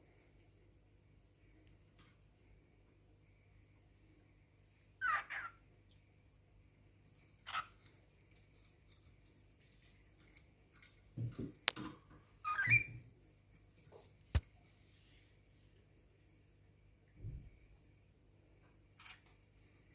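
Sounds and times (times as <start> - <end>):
cockatiel chirps: 5.0 - 5.6, 12.4 - 13.0.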